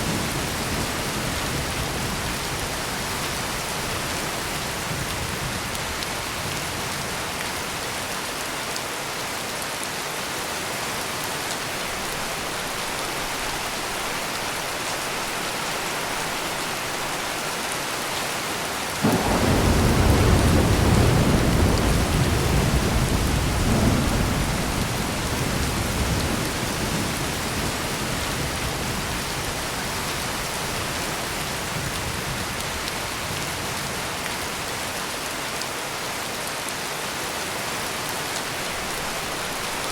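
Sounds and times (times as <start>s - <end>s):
heavy rain pouring: 0.0s - 39.9s
thunder rumbling: 19.0s - 30.1s.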